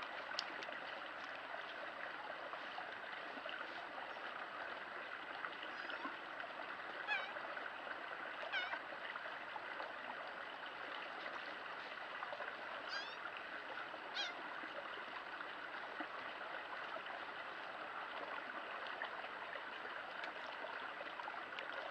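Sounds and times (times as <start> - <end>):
stream flowing: 0.0 - 21.9
high bird calls: 12.9 - 13.2.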